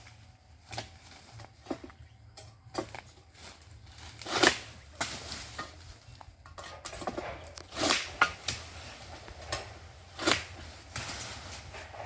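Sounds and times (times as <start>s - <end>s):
sickle slicing palm fronds: 0.0s - 12.0s.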